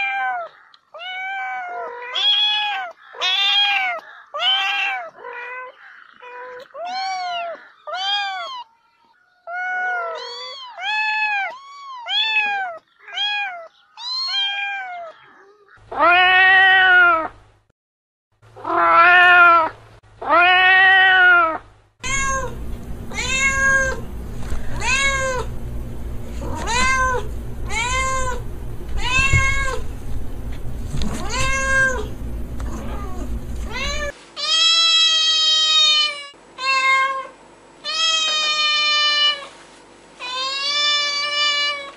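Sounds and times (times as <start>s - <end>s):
cat meowing: 0.0s - 8.7s, 9.5s - 17.3s, 18.6s - 25.6s, 26.4s - 30.0s, 31.0s - 37.3s
kitten mewing: 18.7s - 25.6s, 26.4s - 30.1s, 30.9s - 37.2s
steady low hum: 22.0s - 34.2s.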